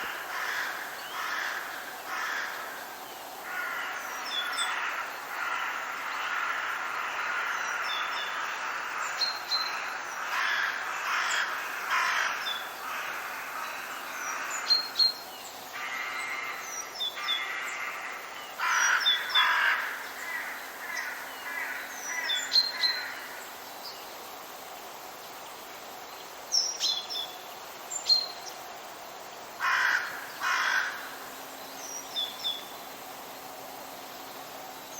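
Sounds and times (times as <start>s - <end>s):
harsh rasping bird calls: 29.6s - 31.3s.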